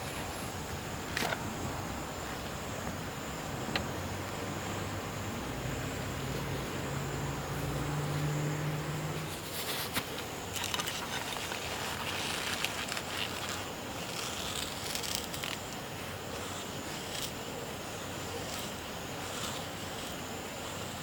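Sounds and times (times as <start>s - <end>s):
high insect buzz: 0.0s - 21.0s
small clicks and rustles: 9.3s - 17.4s.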